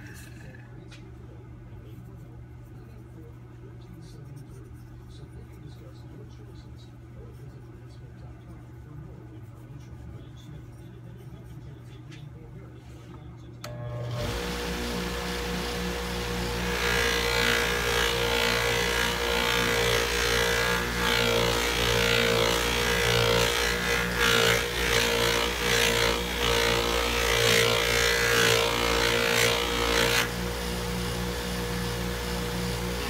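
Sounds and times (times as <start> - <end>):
bench buffer motor running: 13.6 - 33.0.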